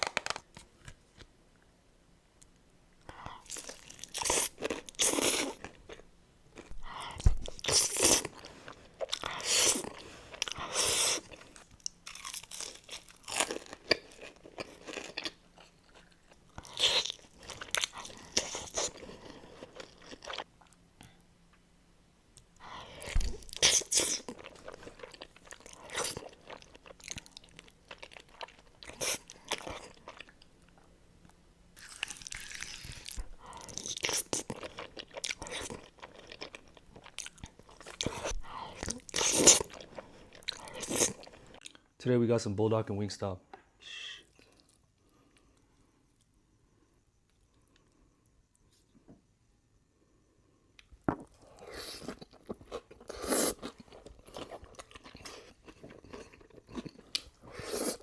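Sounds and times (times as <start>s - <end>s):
person chewing crunchy food: 3.1s - 21.2s, 22.6s - 30.9s, 31.8s - 41.8s, 50.8s - 58.0s.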